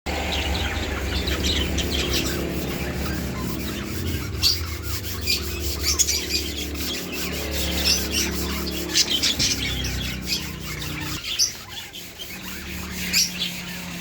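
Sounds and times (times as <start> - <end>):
steady low hum: 0.1 - 11.3
birds chirping and chattering: 0.1 - 14.0
bird squawks: 0.2 - 14.0.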